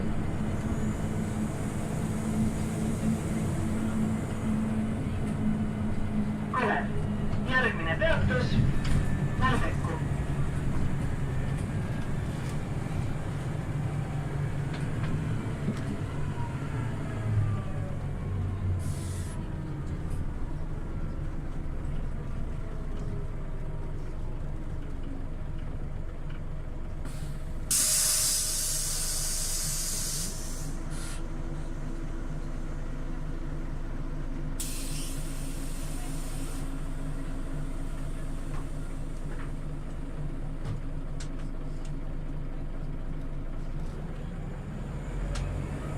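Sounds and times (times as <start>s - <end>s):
bus engine: 0.0s - 45.9s
compressed air hissing: 27.2s - 31.2s, 34.6s - 36.7s.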